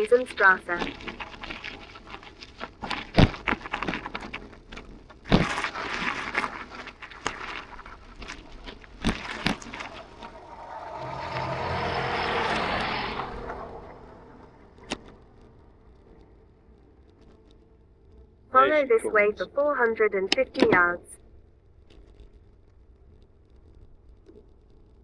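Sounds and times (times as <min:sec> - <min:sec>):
motor vehicle passing: 0:09.8 - 0:16.0.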